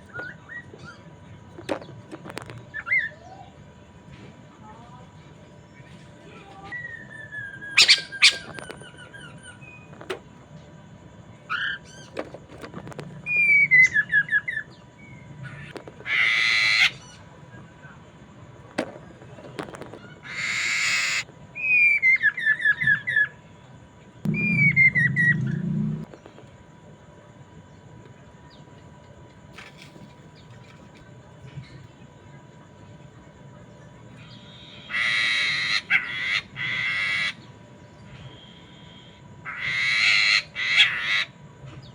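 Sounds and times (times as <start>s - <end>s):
bird singing whistles: 6.7s - 9.9s, 24.3s - 25.5s
harsh rasping bird calls: 6.8s - 9.9s, 13.2s - 17.3s, 20.0s - 23.4s, 34.1s - 41.4s.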